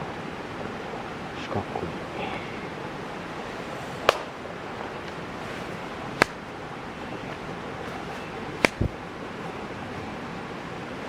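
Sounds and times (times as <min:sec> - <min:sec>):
campfire hissing: 0:00.0 - 0:11.0
burning wood popping: 0:01.7 - 0:09.1
dull thump: 0:03.7 - 0:06.5, 0:07.2 - 0:09.0.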